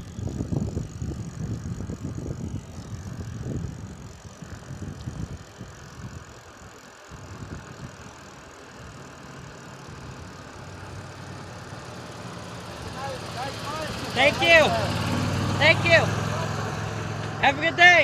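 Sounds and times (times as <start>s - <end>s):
wind rumble on microphone: 0.0s - 6.5s, 7.1s - 8.3s
low vehicle engine hum: 0.0s - 18.0s.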